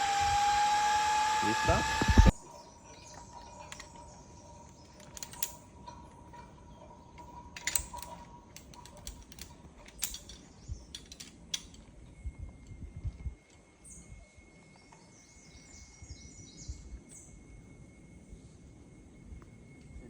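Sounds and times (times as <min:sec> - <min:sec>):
cable whine: 0:00.0 - 0:02.4
metallic clicks of zip-line gear: 0:04.9 - 0:05.7, 0:07.6 - 0:11.8.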